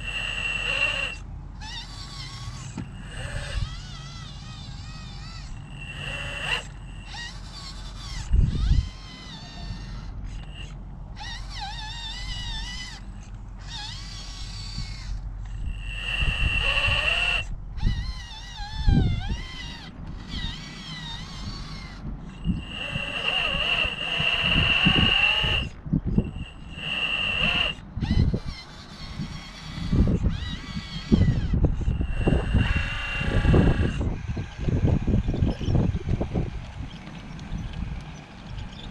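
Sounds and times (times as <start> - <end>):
electric motor whining: 0.0 - 38.9
wind buffeting microphone: 7.8 - 11.4, 14.4 - 38.9.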